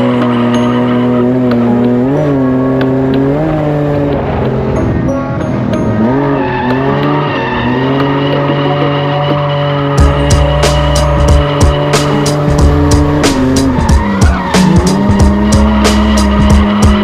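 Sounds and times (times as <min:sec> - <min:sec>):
car engine at high revs: 0:00.0 - 0:17.0
tyres squealing: 0:12.1 - 0:16.5.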